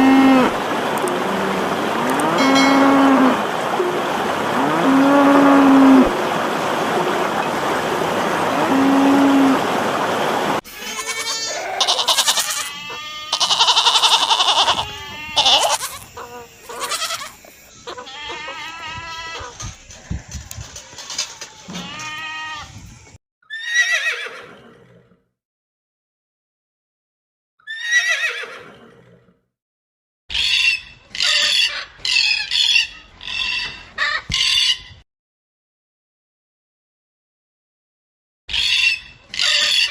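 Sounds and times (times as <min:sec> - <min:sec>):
goats bleating: 0:00.0 - 0:03.4, 0:10.7 - 0:19.5, 0:21.7 - 0:22.7
horse whinny: 0:01.2 - 0:03.4, 0:04.6 - 0:06.1, 0:08.5 - 0:09.6, 0:23.5 - 0:25.2, 0:27.7 - 0:29.2.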